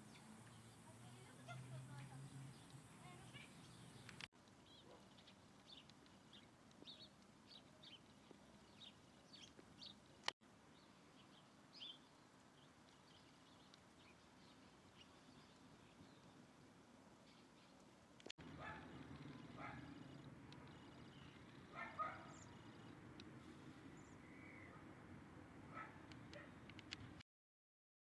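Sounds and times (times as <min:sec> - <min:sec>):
background hiss: 0:00.0 - 0:27.2
birds chirping: 0:00.0 - 0:27.2.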